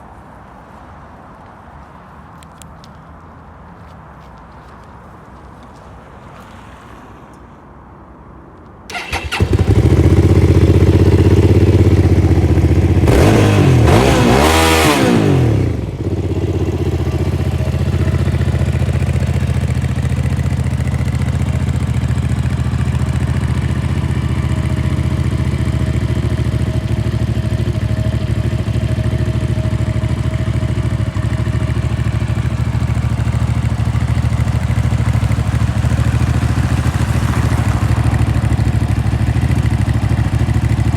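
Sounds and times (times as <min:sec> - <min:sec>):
motorcycle engine revving and idling: 0:08.9 - 0:40.9.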